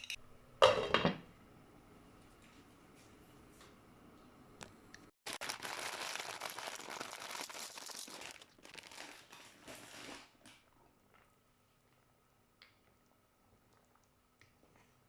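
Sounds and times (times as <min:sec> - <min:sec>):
plastic packaging crinkling: 0:05.3 - 0:10.4.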